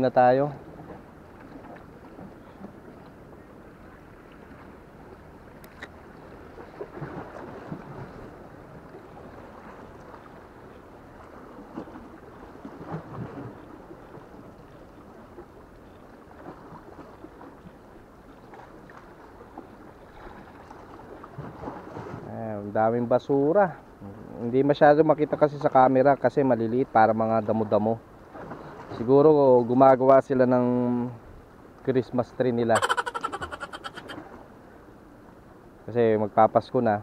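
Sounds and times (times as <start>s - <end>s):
water lapping against concrete: 0.6s - 22.3s, 32.8s - 34.4s.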